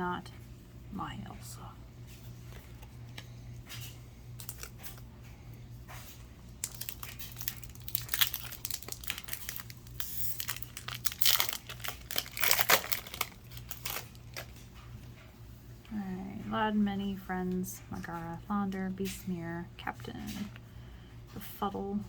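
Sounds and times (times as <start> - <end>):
steady low hum: 0.0 - 22.0
wrapper crinkling and tearing: 4.4 - 5.0, 6.5 - 14.6.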